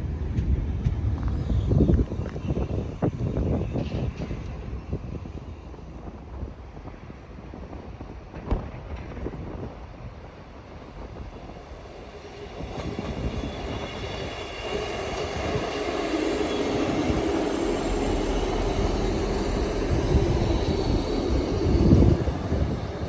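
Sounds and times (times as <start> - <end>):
train passing: 0.0 - 23.0
train whine: 0.0 - 23.0
wheels rumbling: 10.5 - 23.0.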